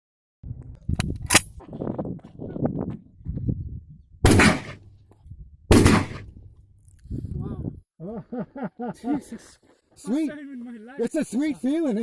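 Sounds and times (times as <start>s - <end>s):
gunshots: 4.3s - 4.8s, 5.7s - 6.4s.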